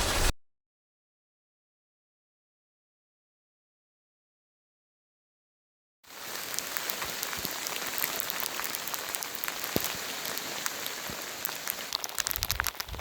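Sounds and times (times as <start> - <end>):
rain pattering: 6.1 - 13.0.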